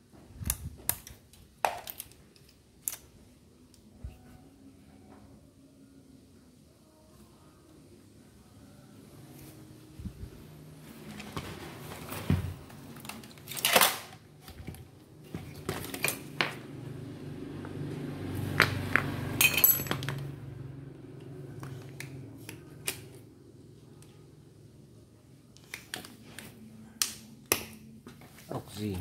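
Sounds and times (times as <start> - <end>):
metal parts clinking: 19.4 - 20.2.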